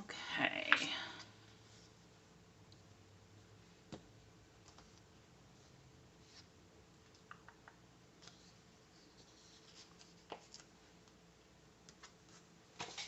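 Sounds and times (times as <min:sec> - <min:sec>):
paper rustling: 0:08.2 - 0:10.8.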